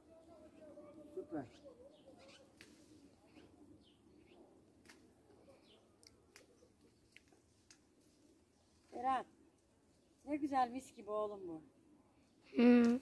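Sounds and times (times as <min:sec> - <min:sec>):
faint bird chirps: 0:00.2 - 0:04.5.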